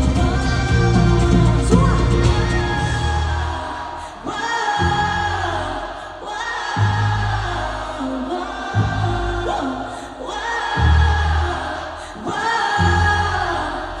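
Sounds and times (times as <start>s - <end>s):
live band with bass line: 0.0s - 3.4s.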